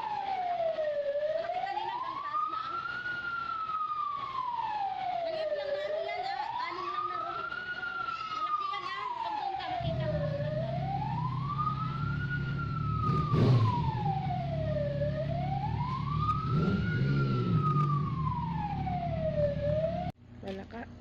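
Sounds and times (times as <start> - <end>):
emergency siren wailing: 0.0 - 20.2
low engine rumble: 9.1 - 21.0.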